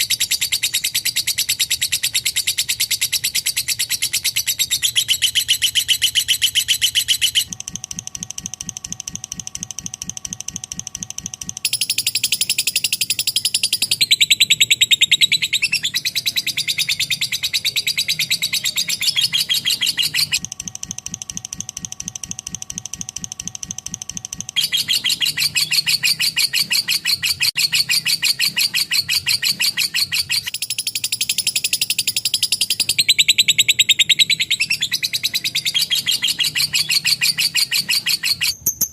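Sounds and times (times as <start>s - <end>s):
lovebird chattering trill: 0.0s - 7.6s, 8.4s - 20.4s, 23.9s - 38.9s.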